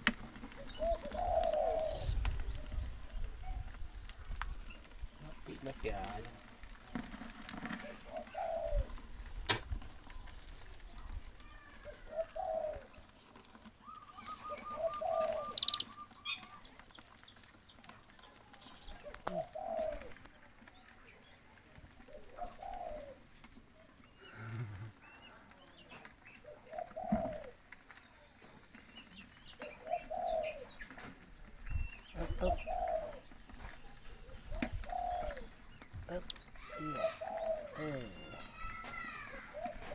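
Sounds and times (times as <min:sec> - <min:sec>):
small bird chirping: 0:00.0 - 0:03.3, 0:08.2 - 0:17.4, 0:18.1 - 0:23.2, 0:31.6 - 0:39.0
bird trill: 0:00.4 - 0:02.2, 0:08.4 - 0:09.5, 0:10.2 - 0:10.7, 0:13.8 - 0:16.5, 0:18.6 - 0:19.0, 0:36.2 - 0:38.6
dove cooing: 0:00.4 - 0:02.3, 0:07.8 - 0:09.5, 0:10.2 - 0:10.7, 0:11.8 - 0:13.0, 0:13.8 - 0:16.6, 0:18.6 - 0:20.2, 0:22.1 - 0:23.3, 0:26.4 - 0:27.6, 0:29.6 - 0:30.8, 0:32.1 - 0:39.9.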